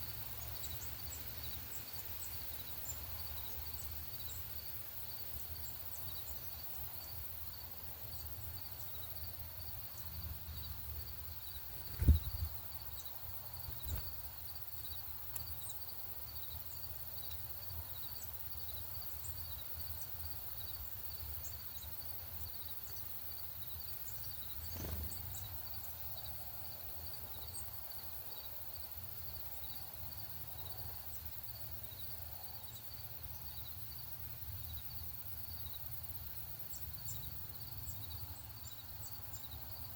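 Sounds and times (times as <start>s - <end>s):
high-pitched insect chirping: 0.2s - 26.0s
sharp thump: 11.9s - 12.5s.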